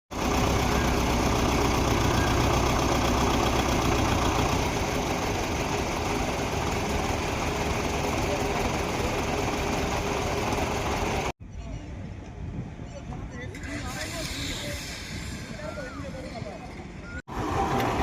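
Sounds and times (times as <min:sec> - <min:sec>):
tractor engine running: 0:00.1 - 0:11.4.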